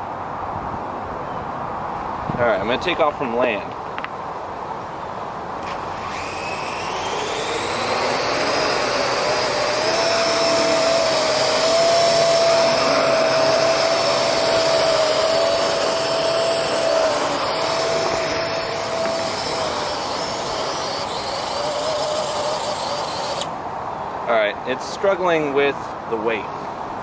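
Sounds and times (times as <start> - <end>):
drone rotors whining: 5.6 - 23.6.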